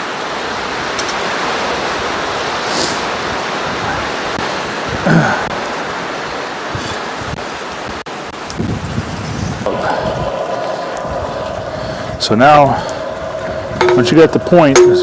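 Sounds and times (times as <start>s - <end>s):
forge rushing hiss: 9.6s - 15.0s.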